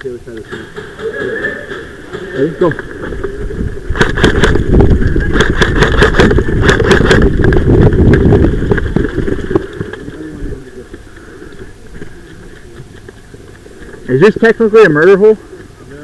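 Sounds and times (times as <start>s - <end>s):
gear clicks and knocks: 0.4s - 10.2s
wind buffeting microphone: 0.4s - 13.8s.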